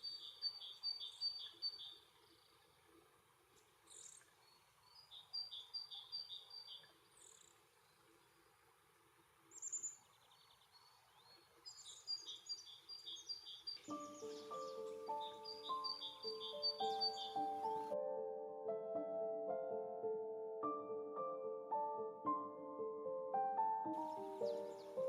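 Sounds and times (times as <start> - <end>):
songbirds singing and calling: 0.0 - 2.7, 3.8 - 8.6, 9.5 - 18.0, 23.9 - 25.0
music: 13.8 - 25.0.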